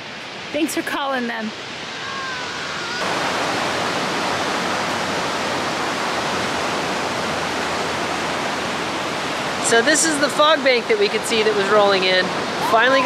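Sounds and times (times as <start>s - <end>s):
ocean surf breaking on beach: 0.0s - 13.0s.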